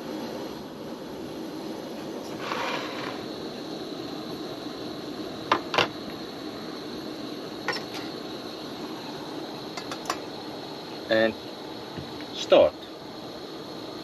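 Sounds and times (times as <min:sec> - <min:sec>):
background hiss: 0:00.0 - 0:14.0
metal pot clinking: 0:07.7 - 0:08.1, 0:09.8 - 0:10.3.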